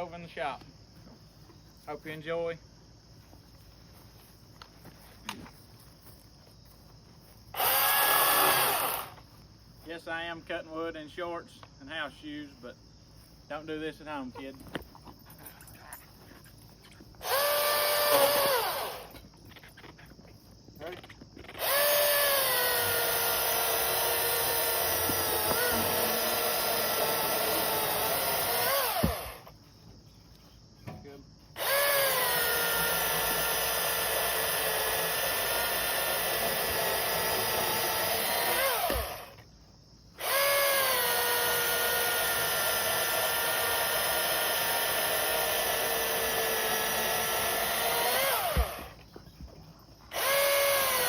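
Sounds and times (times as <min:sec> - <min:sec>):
battery chainsaw running: 0:07.6 - 0:09.2, 0:17.2 - 0:19.2, 0:21.6 - 0:29.5, 0:31.6 - 0:39.4, 0:40.2 - 0:49.0, 0:50.1 - 0:51.0.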